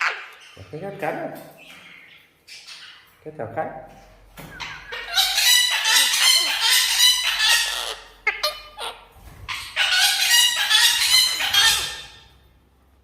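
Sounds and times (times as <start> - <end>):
parakeet screeching calls: 4.6 - 12.3.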